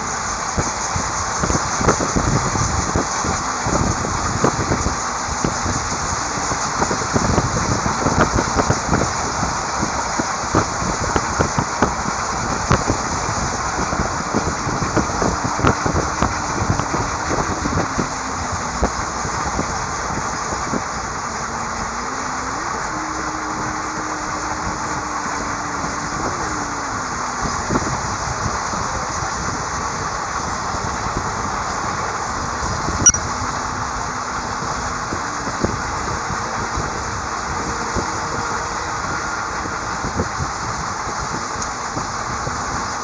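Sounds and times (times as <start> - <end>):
train rumbling on rails: 0.0 - 43.0
faint thin tone: 33.0 - 33.3.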